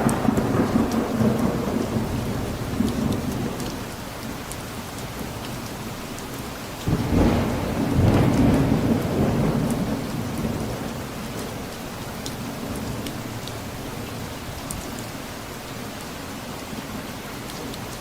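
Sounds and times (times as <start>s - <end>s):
thunder rumble: 0.0s - 3.7s, 6.9s - 14.4s
steady rain: 0.0s - 18.0s.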